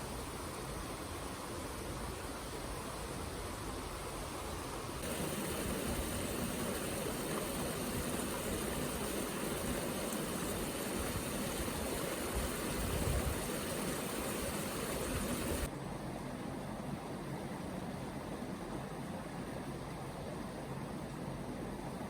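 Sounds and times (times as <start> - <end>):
flowing water rushing: 0.0 - 15.7.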